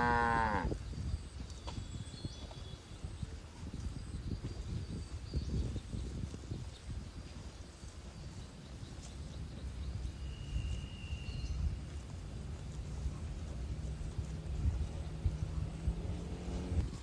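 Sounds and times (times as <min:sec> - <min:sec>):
wind buffeting microphone: 0:00.0 - 0:17.0
thin high whistle: 0:10.2 - 0:11.7.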